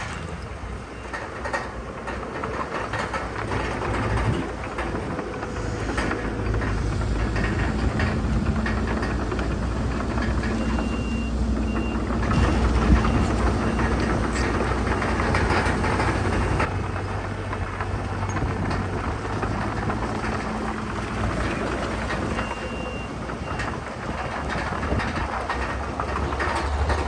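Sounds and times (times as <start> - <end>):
diesel engine rumble: 0.0 - 27.0
metallic clanking and rattling: 0.0 - 27.0
reversing beeper: 10.5 - 15.3.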